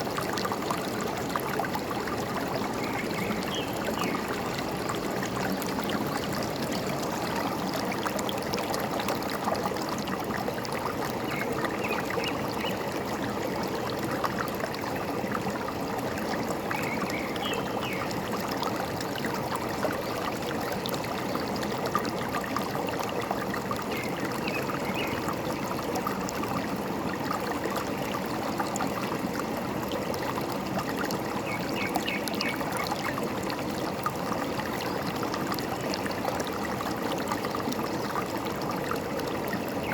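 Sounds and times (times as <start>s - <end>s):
stream gurgling over stones: 0.0s - 39.9s.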